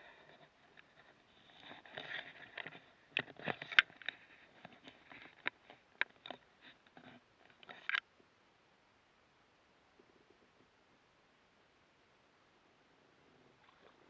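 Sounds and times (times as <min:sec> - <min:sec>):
light knocks clicks and scrapes: 0:00.0 - 0:08.0.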